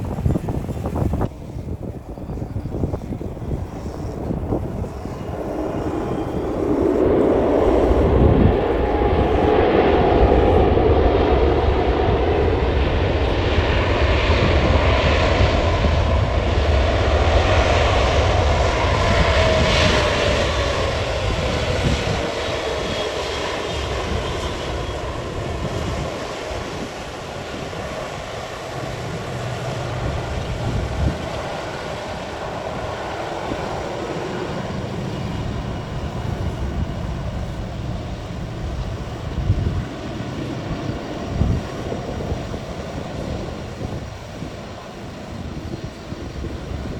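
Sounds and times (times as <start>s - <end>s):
airliner engines passing: 0.0s - 46.9s
whine gliding down in pitch: 2.2s - 16.5s.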